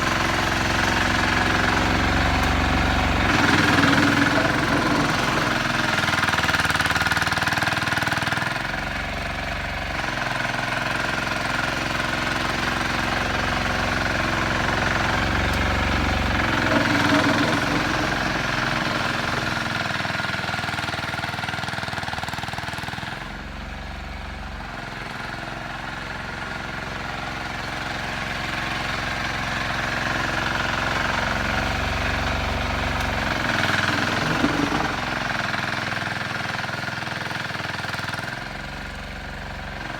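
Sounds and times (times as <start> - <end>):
garden tractor engine drone: 0.0 - 39.9.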